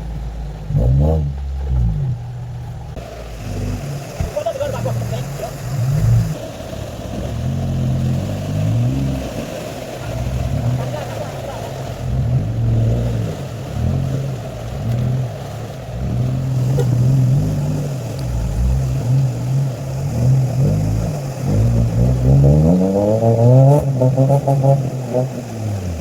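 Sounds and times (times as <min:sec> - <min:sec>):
engine revving: 0:00.0 - 0:26.0.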